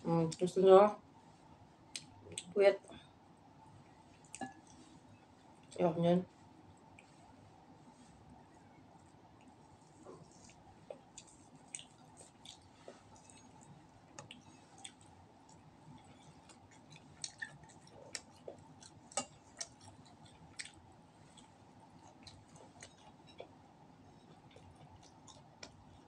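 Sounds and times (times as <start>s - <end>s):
low room hum: 0.0s - 26.0s
person chewing with mouth clicks: 9.4s - 23.6s, 24.2s - 26.0s.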